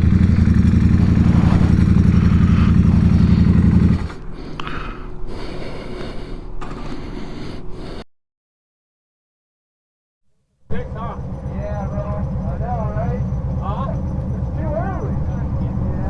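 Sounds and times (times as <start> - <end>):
motorcycle engine running: 0.0 - 4.5, 10.7 - 16.0.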